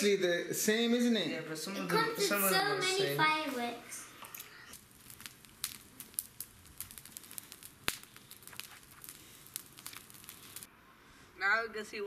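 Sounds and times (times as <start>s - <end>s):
light crackling clicks: 4.2s - 10.7s.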